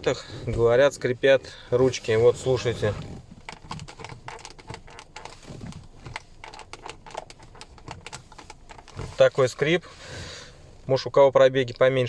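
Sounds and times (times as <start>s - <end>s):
plastic door handle creaking: 2.2s - 9.8s.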